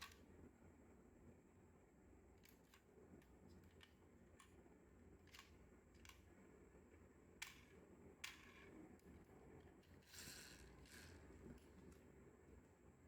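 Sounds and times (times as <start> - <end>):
model cars clicking and tapping: 5.2 - 6.3, 7.4 - 8.7.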